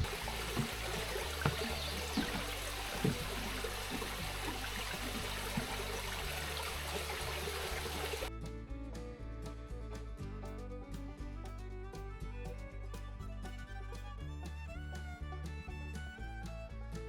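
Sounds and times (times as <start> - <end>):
creek water rushing: 0.0 - 8.3
background music: 0.0 - 17.0.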